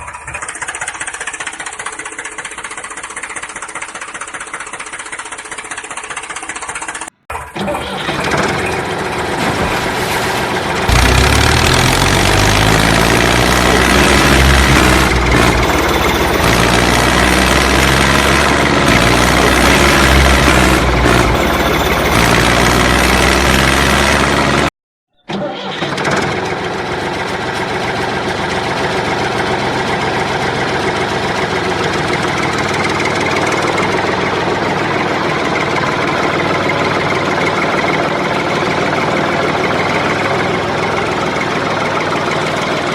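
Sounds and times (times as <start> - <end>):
machine engine running: 0.0 - 24.7.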